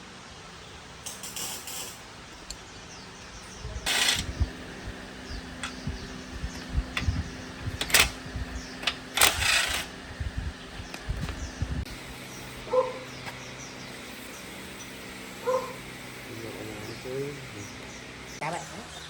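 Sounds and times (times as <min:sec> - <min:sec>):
steady hum: 0:00.5 - 0:18.4
short rasping bursts: 0:03.8 - 0:10.0.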